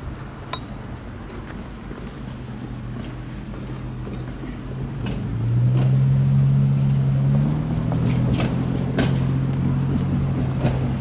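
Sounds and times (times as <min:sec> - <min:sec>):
diesel locomotive engine drone: 0:00.0 - 0:11.0
steel wheels clacking over rails: 0:07.9 - 0:11.0.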